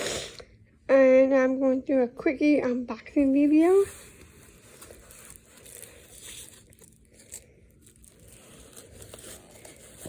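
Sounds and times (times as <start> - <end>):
packaging rustling and crinkling: 3.4 - 10.0.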